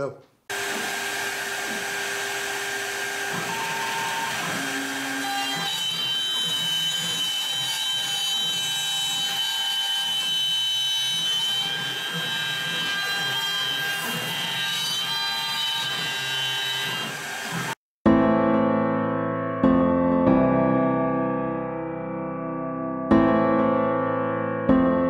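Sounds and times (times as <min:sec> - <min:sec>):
axis motor whining tones: 0:00.5 - 0:07.4
router spindle whining: 0:00.5 - 0:17.8.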